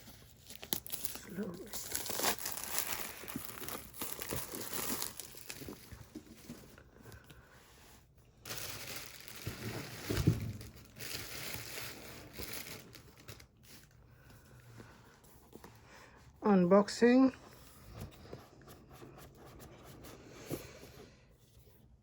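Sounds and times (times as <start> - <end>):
packaging crinkling and tearing: 0.0 - 6.8, 8.4 - 14.0
thump: 10.1 - 10.7.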